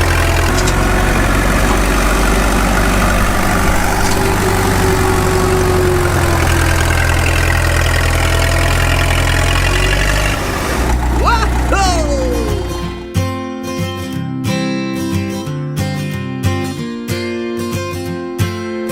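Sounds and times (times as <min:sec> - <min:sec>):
tractor engine idling: 0:00.0 - 0:13.1.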